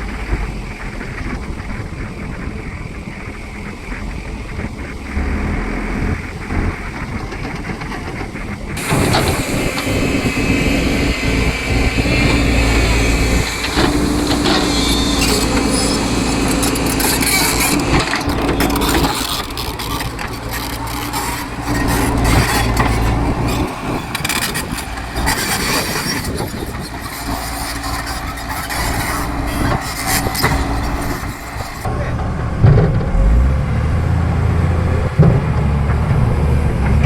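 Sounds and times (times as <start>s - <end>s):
excavator diesel engine under load: 0.0s - 37.0s
knocks and rattles: 6.4s - 37.0s.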